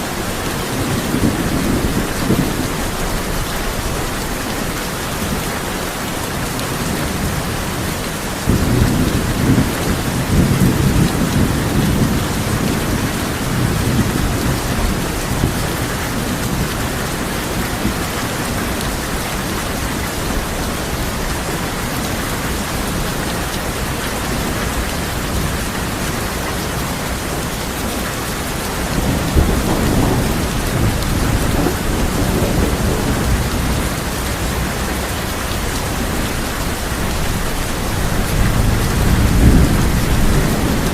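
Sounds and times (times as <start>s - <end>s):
heavy rain on a tin roof: 0.0s - 40.9s
thunder rolling: 28.7s - 40.9s.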